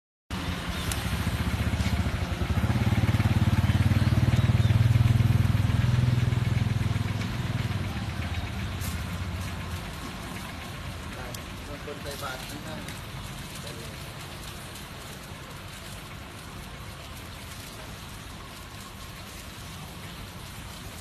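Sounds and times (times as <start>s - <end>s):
small engine throbbing: 0.3s - 17.1s.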